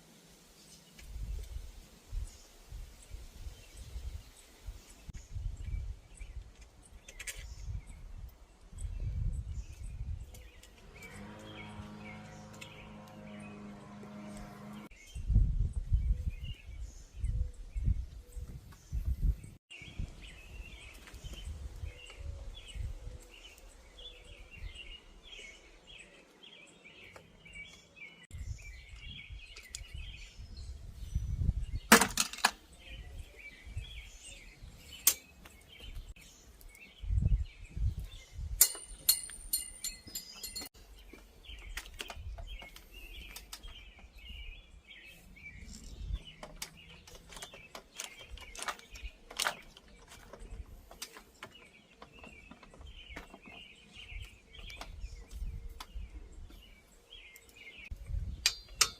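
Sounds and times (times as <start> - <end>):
birds chirping faintly: 0.4 - 58.9
high ringing: 38.6 - 40.7
hand tools clinking on metal: 38.6 - 40.8, 58.4 - 58.9.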